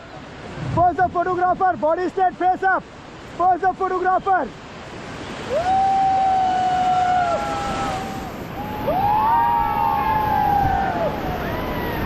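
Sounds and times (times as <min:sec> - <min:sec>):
river rapids rushing: 0:00.0 - 0:12.0
people yelling whoops: 0:05.5 - 0:12.0.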